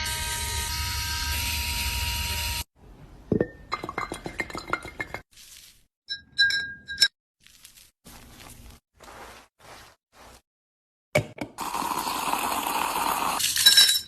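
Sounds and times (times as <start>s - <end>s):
glass clinking: 3.3s - 5.2s, 6.1s - 7.1s.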